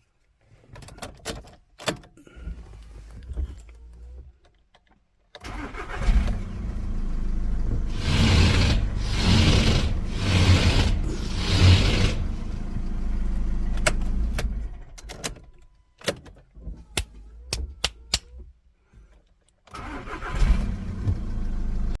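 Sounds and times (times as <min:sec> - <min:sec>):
car engine running: 0:06.2 - 0:14.8
ignition switch clicks: 0:16.0 - 0:18.4.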